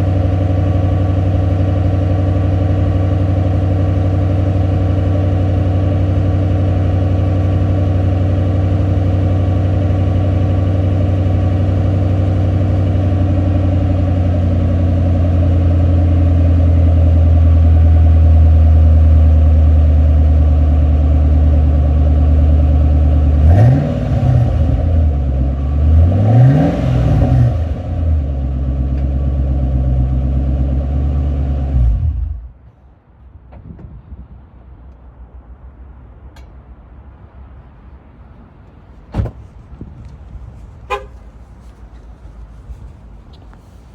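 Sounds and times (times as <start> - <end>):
car engine idling and revving: 0.0 - 32.7, 34.9 - 43.9.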